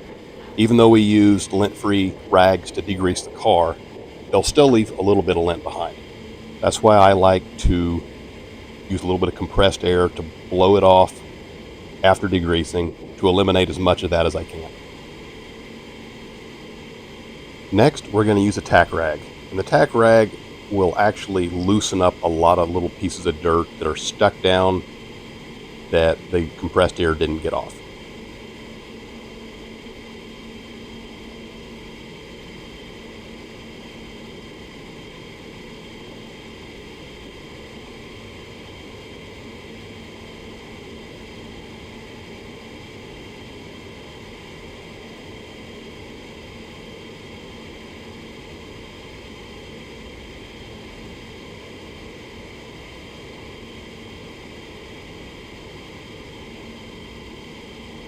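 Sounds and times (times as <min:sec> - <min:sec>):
faint hum: 0:00.0 - 0:58.0
ventilation fan rushing: 0:00.0 - 0:58.0.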